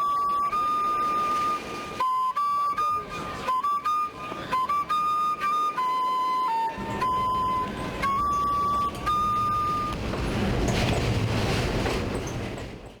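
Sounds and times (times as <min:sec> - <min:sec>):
flute playing long notes: 0:00.0 - 0:10.0
subway train rumbling and rattling: 0:00.0 - 0:13.0.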